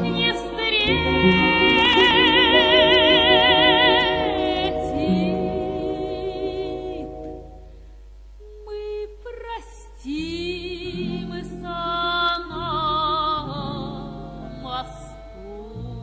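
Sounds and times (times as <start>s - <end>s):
person singing with vibrato: 0.0s - 7.8s, 8.4s - 16.0s
instrumental accompaniment: 0.0s - 8.7s.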